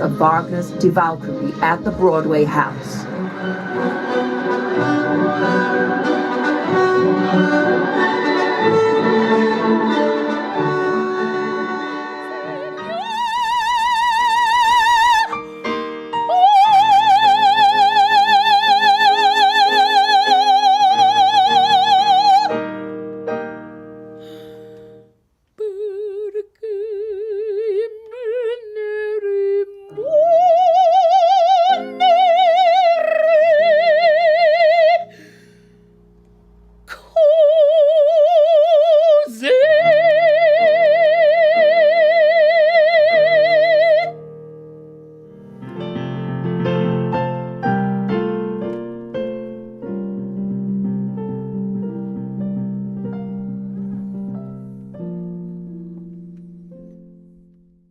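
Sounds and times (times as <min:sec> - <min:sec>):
soprano singing opera: 0:00.0 - 0:22.6, 0:25.6 - 0:35.1, 0:36.9 - 0:44.2
string instrumental music: 0:00.0 - 0:25.1, 0:42.2 - 0:57.8
piano accompaniment: 0:00.0 - 0:25.2, 0:29.9 - 0:36.9, 0:42.7 - 0:57.9.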